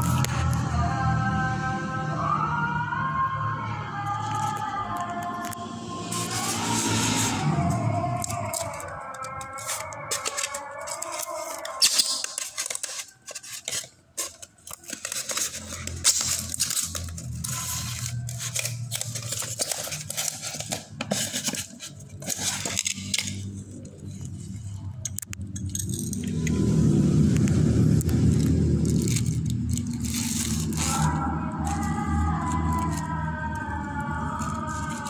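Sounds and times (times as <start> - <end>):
low rumble: 5.5 - 8.6, 25.3 - 35.0
unpacking taps clicks and scrapes: 8.1 - 26.4, 27.4 - 35.0.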